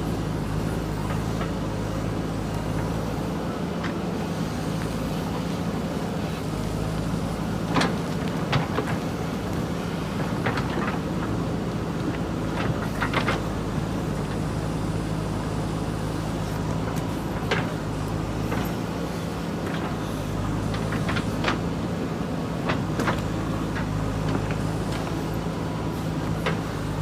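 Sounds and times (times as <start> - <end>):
diesel engine under load: 0.0 - 27.0.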